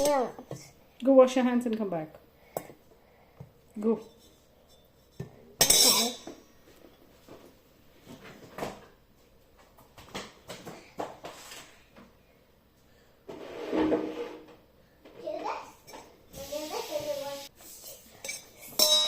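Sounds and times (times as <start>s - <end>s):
drawer scraping and clunking: 13.3s - 14.5s.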